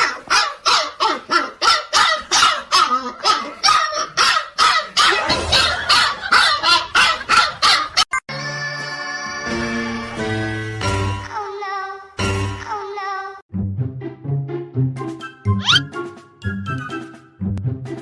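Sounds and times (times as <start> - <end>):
dog barking rapidly: 0.0 - 8.0, 15.6 - 15.8.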